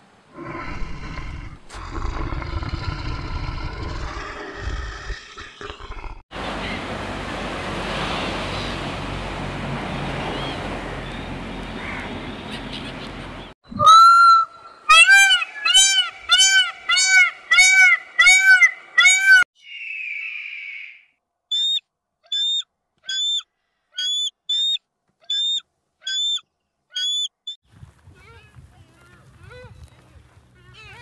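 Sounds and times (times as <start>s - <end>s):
bird calls rising and falling: 10.3s - 27.6s.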